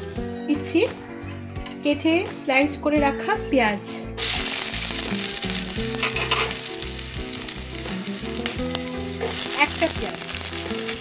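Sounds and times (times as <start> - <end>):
onions sizzling in hot oil: 4.2 - 11.0.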